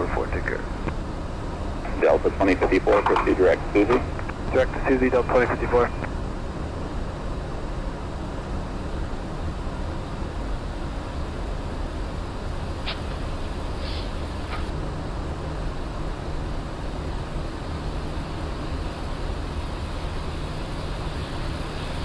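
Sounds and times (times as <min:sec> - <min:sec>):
aircraft cockpit rushing hiss: 0:01.9 - 0:06.1, 0:12.7 - 0:14.7.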